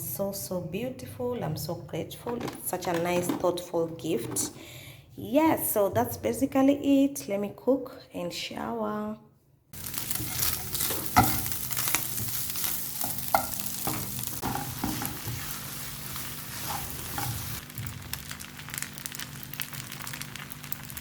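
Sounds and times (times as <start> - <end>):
food sizzling in a pan: 9.8 - 21.0
utensil scraping a pan: 9.9 - 17.6.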